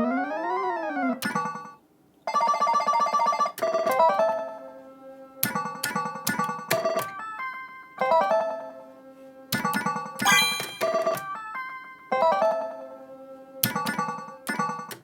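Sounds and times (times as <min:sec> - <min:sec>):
slot machine electronic tones and chimes: 0:01.2 - 0:04.0, 0:05.5 - 0:07.0, 0:09.8 - 0:11.5.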